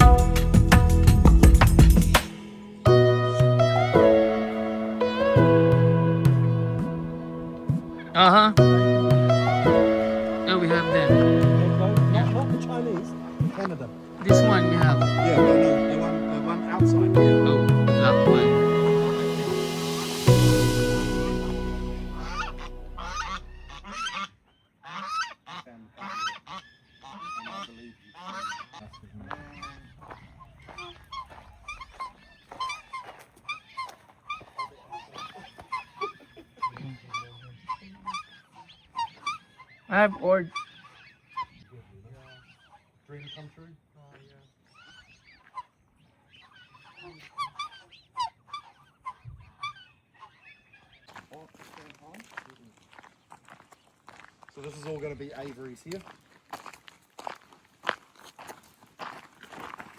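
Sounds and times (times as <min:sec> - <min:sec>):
geese honking: 0:02.8 - 0:51.4.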